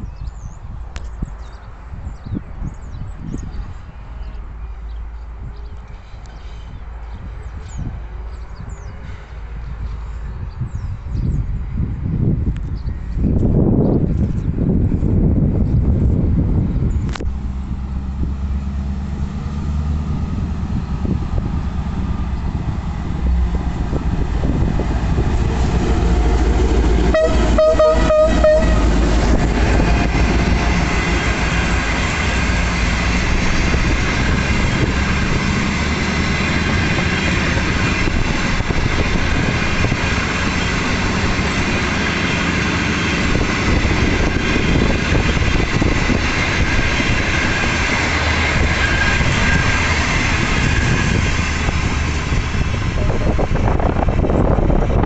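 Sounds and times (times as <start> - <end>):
train coaches rumbling past: 0.0 - 55.0
train horn toots: 26.8 - 29.1, 48.5 - 53.2.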